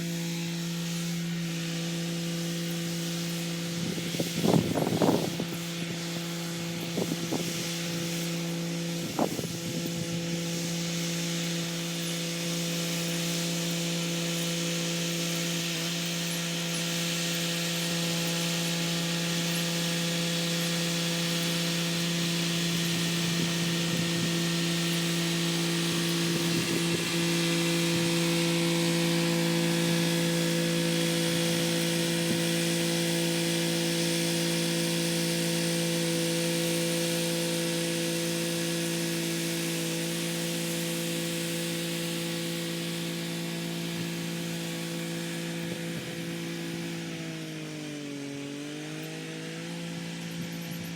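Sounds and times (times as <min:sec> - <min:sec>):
rotary tiller in soil: 0:00.0 - 0:50.9
tractor diesel engine hum: 0:00.0 - 0:50.9.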